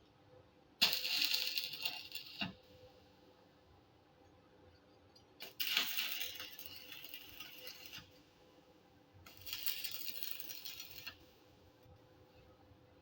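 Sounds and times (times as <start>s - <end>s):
electric arc welding crackling: 0.8s - 2.6s, 5.4s - 8.1s, 9.3s - 11.2s.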